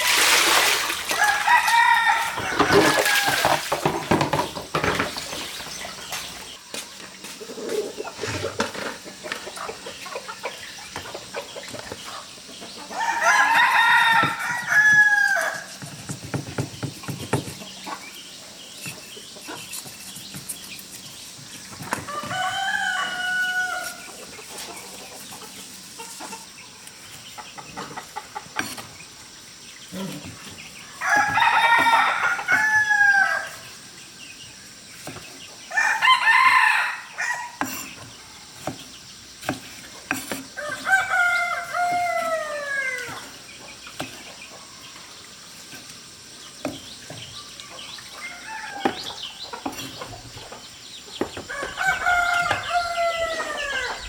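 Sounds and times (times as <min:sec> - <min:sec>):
rooster crowing: 0:01.1 - 0:03.7, 0:12.9 - 0:15.7, 0:22.1 - 0:24.0, 0:31.0 - 0:33.6, 0:35.7 - 0:37.6, 0:40.6 - 0:43.3, 0:51.4 - 0:54.0.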